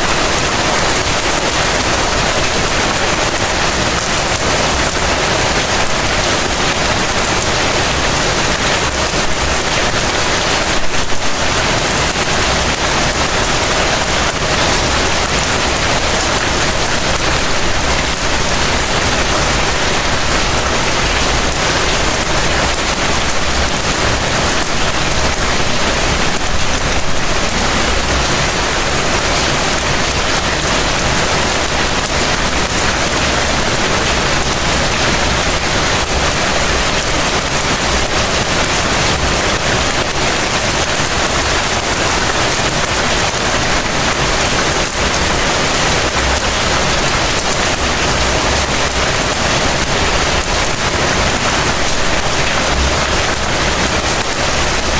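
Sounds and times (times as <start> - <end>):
heavy rain falling: 0.0 - 54.9.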